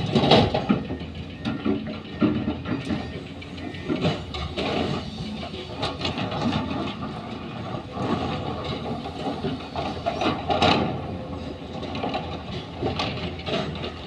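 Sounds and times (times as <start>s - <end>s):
heavy machinery engine: 0.0s - 14.0s
metallic knocks and clatter: 11.7s - 14.0s.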